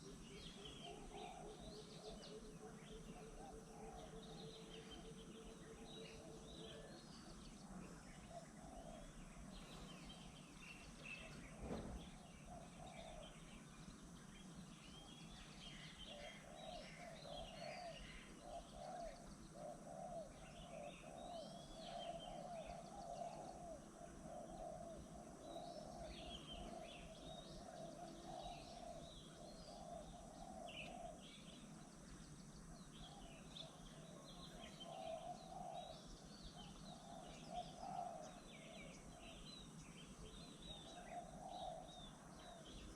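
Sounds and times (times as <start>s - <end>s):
dove cooing: 0.0s - 13.7s, 14.9s - 31.8s, 32.9s - 42.9s
small birds chirping: 0.0s - 42.9s
short thump: 11.6s - 12.1s.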